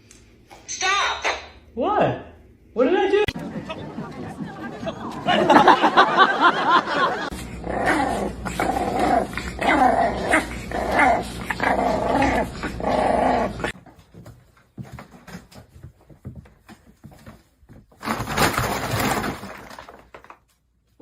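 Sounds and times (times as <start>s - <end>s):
dog growling: 6.9s - 13.8s.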